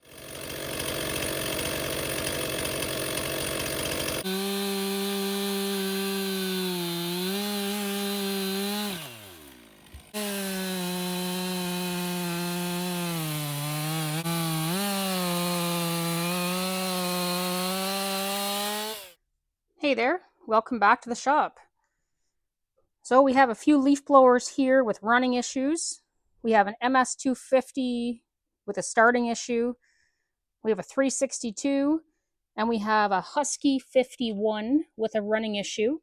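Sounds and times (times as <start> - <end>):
chainsaw running at high revs: 0.0 - 19.2.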